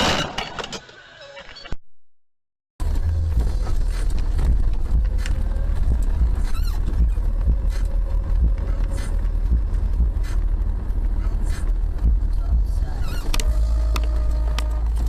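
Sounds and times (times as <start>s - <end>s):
car engine and road noise: 2.8s - 15.0s.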